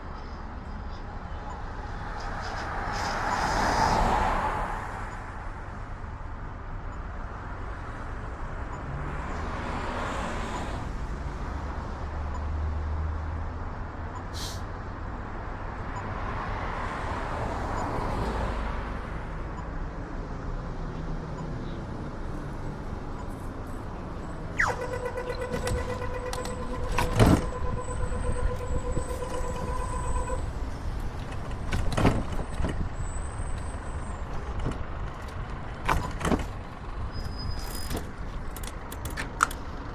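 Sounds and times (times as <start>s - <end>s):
road traffic noise: 0.0s - 39.9s
vehicles passing: 0.0s - 39.9s
pitched tone: 24.5s - 31.9s.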